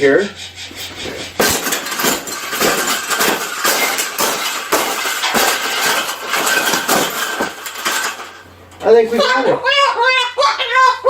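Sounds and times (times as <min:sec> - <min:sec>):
wire cage bars clattering: 0:00.6 - 0:09.5.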